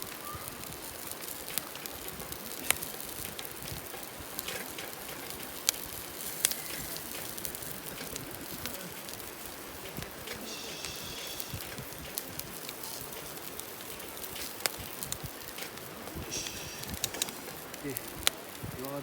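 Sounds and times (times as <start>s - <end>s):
campfire crackling: 0.0s - 19.0s
fire popping: 0.0s - 19.0s.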